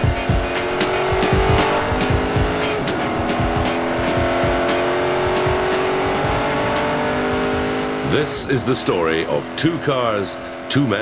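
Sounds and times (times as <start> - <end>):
background music with drum beat: 0.0 - 8.3
sports car engine accelerating: 0.0 - 11.0.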